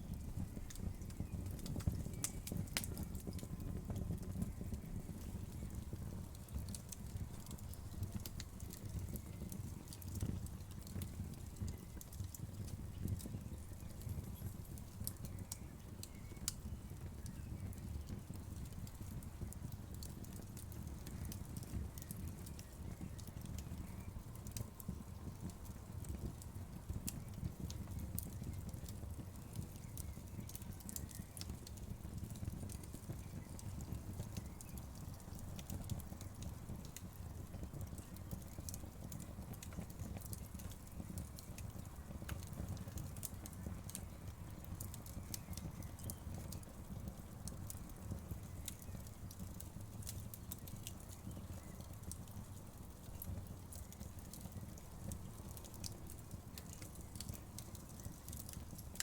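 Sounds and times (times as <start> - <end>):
low rumble of flames: 0.0 - 59.0
wood fire popping and snapping: 0.0 - 59.0.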